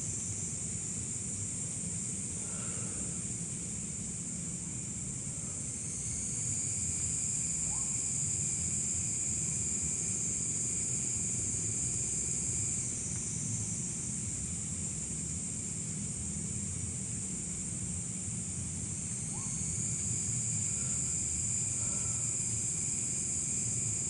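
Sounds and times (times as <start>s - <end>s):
night insects chorus: 0.0s - 24.0s.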